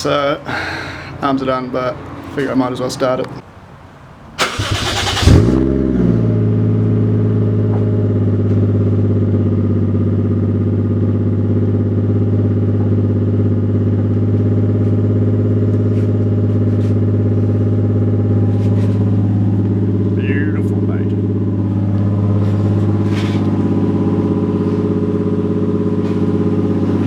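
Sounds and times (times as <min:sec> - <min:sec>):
car engine idling: 0:03.9 - 0:27.0.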